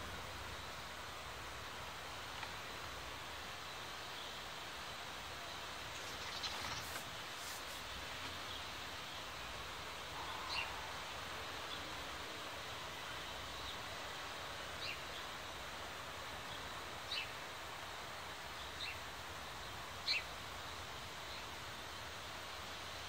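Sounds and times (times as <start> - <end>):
outdoor background hiss: 0.0 - 23.0
bird chirping: 5.4 - 9.2, 10.2 - 12.0.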